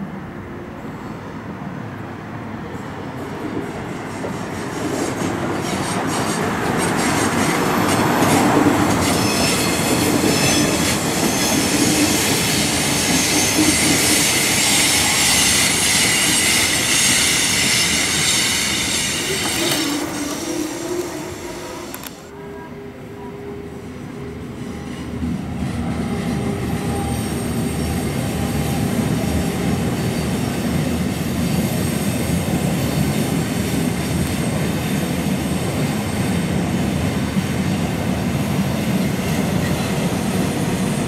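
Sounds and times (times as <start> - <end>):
electric train running: 5.6 - 22.3
high-pitched wheel squeal: 9.0 - 22.2.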